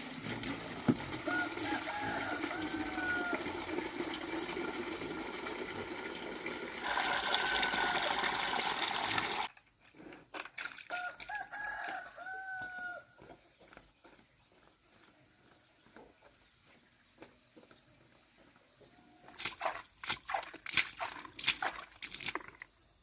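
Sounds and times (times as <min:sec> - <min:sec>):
running water: 0:00.0 - 0:09.5, 0:19.3 - 0:22.9
rooster crowing: 0:01.2 - 0:03.6, 0:06.8 - 0:08.6, 0:10.9 - 0:13.3.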